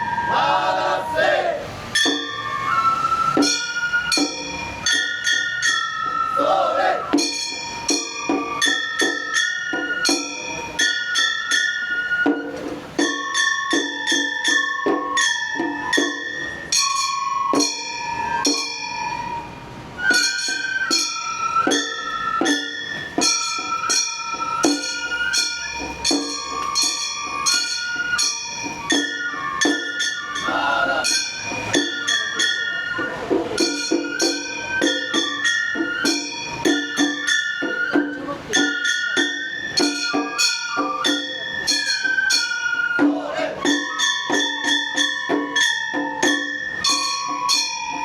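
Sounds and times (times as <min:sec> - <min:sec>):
high transverse flute melody: 0:00.0 - 0:48.0
small brass gongs ringing: 0:01.9 - 0:02.8, 0:03.4 - 0:06.2, 0:07.1 - 0:12.2, 0:13.0 - 0:37.8.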